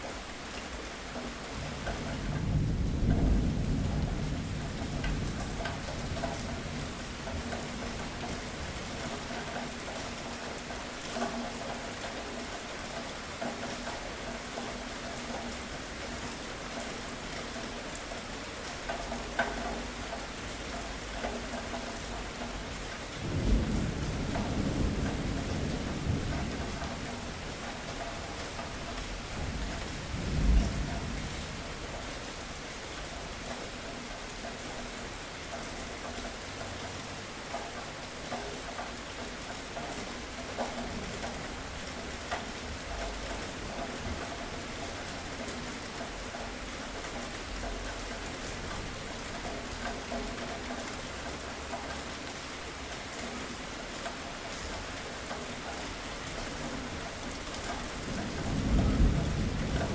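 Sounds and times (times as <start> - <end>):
heavy rain: 0.0 - 59.9
thunder rumbling: 1.6 - 9.2, 23.2 - 32.0, 56.9 - 59.9.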